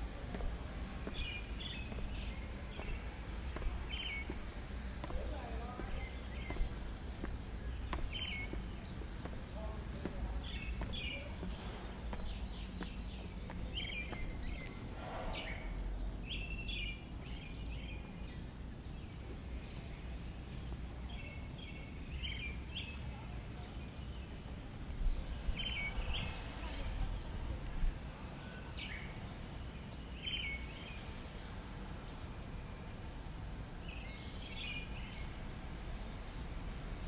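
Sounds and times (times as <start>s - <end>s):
low background rumble: 0.0s - 19.9s
small birds chirping: 0.0s - 37.0s.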